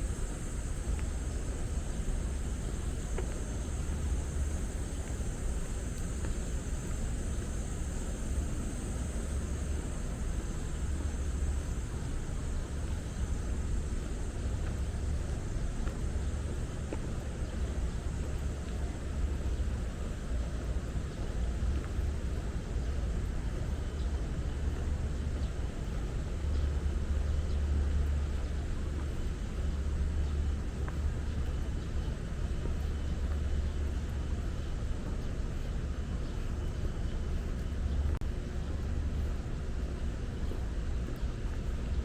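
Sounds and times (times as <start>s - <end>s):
even hiss: 0.0s - 15.8s
low city rumble: 0.0s - 42.0s.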